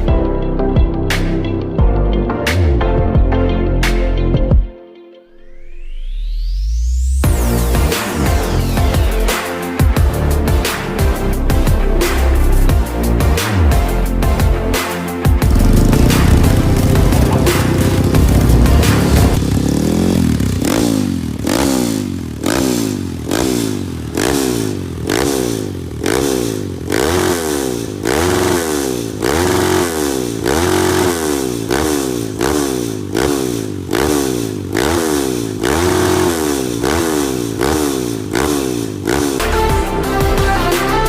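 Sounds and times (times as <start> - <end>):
trail-bike engine revving: 15.4 - 41.0.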